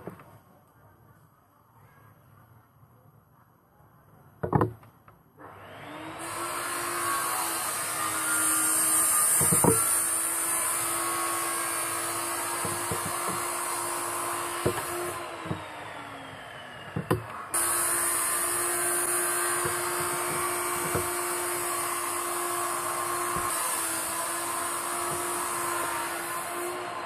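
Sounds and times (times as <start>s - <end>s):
electric power tool running: 5.4s - 27.0s
knock: 9.4s - 9.8s, 12.6s - 13.4s.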